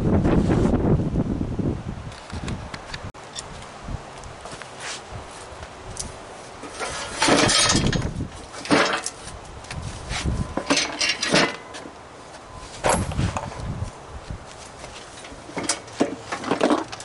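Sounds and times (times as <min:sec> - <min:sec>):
metal parts clanking: 0:06.6 - 0:09.2, 0:10.6 - 0:11.9, 0:12.8 - 0:13.6, 0:15.2 - 0:17.0.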